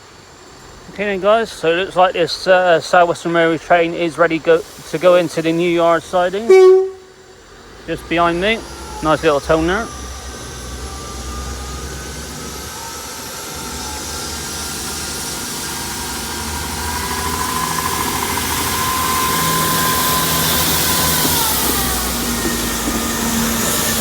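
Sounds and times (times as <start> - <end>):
diesel train engines running: 0.0 - 24.0
steady whine: 6.2 - 7.6.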